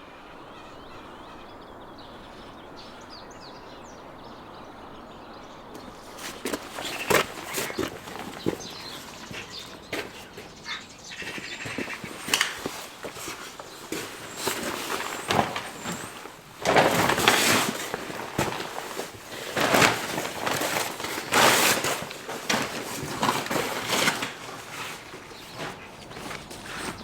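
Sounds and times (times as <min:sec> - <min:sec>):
crunching footsteps: 0:05.7 - 0:27.0.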